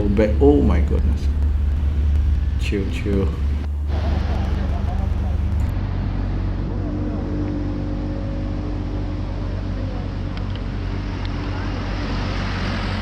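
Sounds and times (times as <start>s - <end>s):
motorcycle engine running: 0.0s - 5.7s
wind and road noise: 0.0s - 6.2s.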